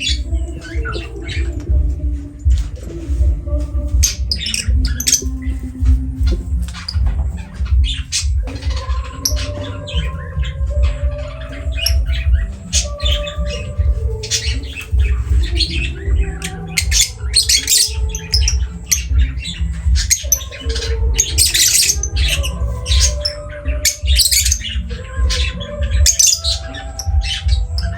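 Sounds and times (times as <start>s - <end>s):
background music: 0.0s - 27.9s
lovebirds squawking: 0.0s - 27.9s.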